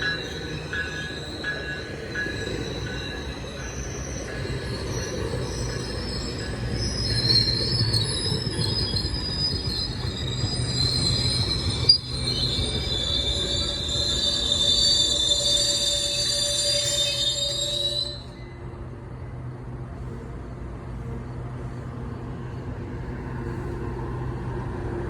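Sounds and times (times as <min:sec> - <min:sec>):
train wheels squealing: 0:00.0 - 0:19.5
low train rumble: 0:00.0 - 0:25.0.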